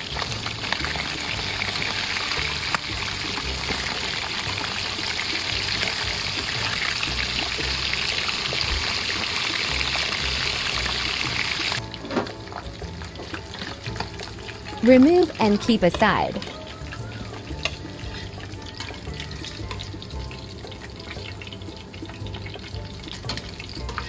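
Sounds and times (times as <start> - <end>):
chicken sizzling in oil: 0.0 - 24.0
soft background music: 0.0 - 24.0.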